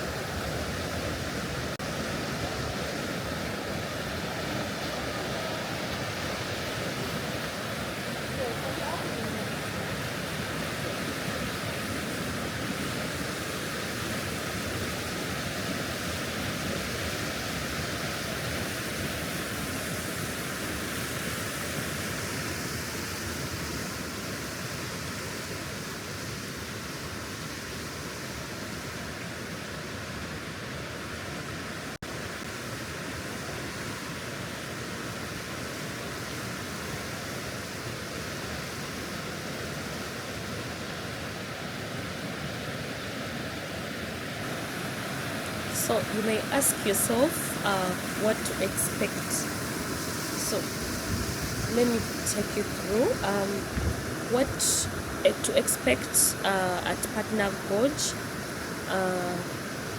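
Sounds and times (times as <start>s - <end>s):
mountain stream rushing: 0.0s - 59.9s.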